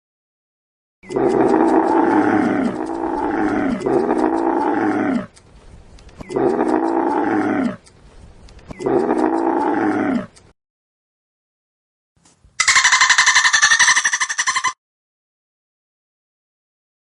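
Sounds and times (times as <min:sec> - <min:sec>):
big cat roaring: 0:01.0 - 0:05.4, 0:06.2 - 0:07.8, 0:08.8 - 0:10.4.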